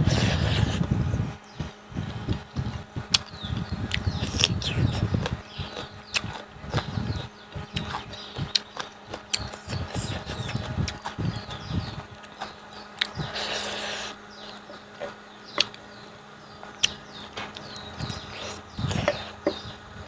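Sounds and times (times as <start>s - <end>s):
person chewing: 3.9s - 7.0s, 7.6s - 11.6s, 12.2s - 14.2s, 17.6s - 19.6s.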